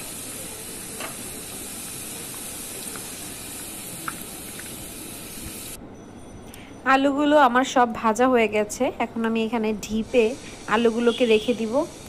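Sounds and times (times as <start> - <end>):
potato sticks sizzling in oil: 0.0 - 5.8, 9.9 - 12.0.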